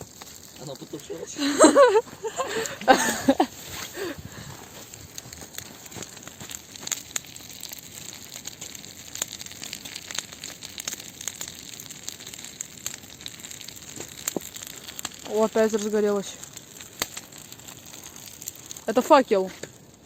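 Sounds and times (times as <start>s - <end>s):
bonfire crackling and hissing: 0.0s - 20.0s.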